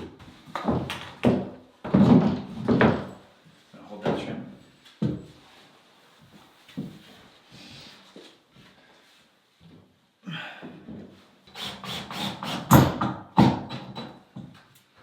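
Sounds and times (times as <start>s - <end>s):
hammer nailing wooden boards: 11.6s - 14.2s.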